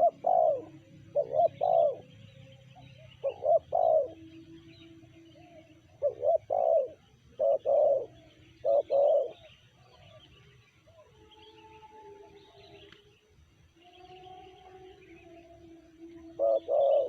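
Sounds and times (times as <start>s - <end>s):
dove cooing: 0.0s - 10.3s, 16.0s - 17.0s
small birds chirping: 0.0s - 17.0s.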